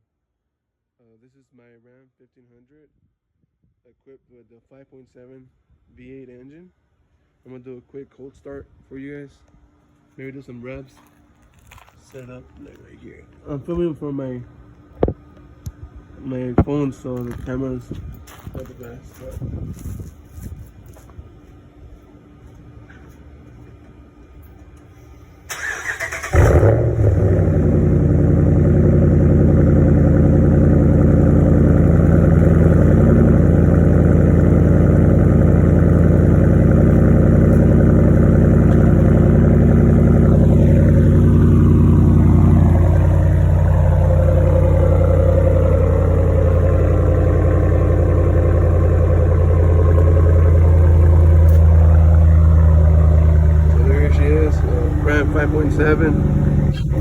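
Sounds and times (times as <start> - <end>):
starter motor cranking: 25.5 - 26.7
car engine idling: 25.5 - 57.0
falling whine: 26.4 - 57.0.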